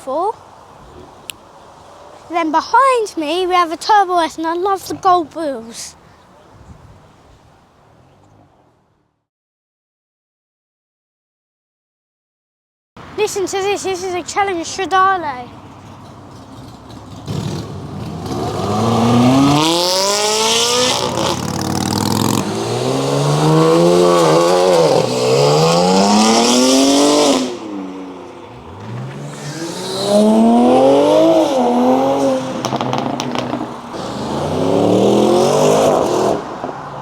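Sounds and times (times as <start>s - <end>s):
car engine revving hard: 17.2s - 36.7s.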